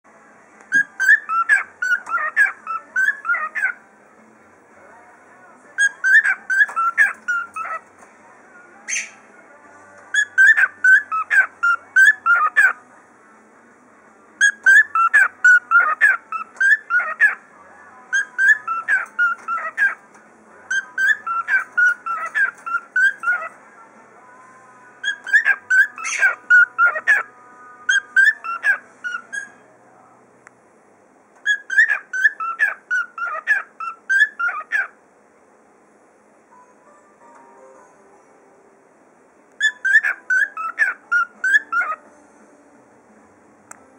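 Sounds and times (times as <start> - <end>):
cockatiel whistling: 0.7 - 3.8, 5.8 - 7.8, 10.1 - 12.7, 14.4 - 17.4, 18.1 - 20.0, 20.7 - 23.5, 25.0 - 27.2, 27.9 - 29.6, 31.4 - 34.9, 39.6 - 42.0.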